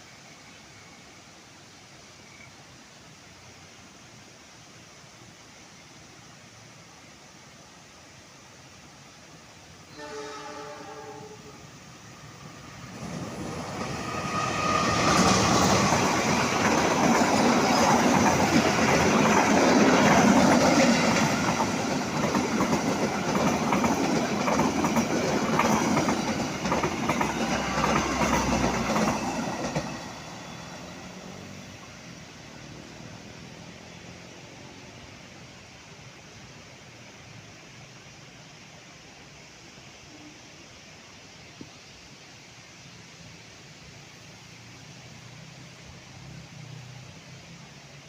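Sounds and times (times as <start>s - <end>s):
train horn: 9.9s - 11.7s.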